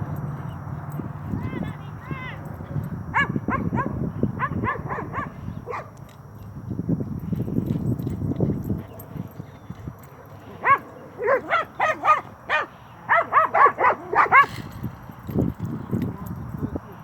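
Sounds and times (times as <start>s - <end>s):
dog barking: 2.7s - 6.0s, 10.2s - 14.6s.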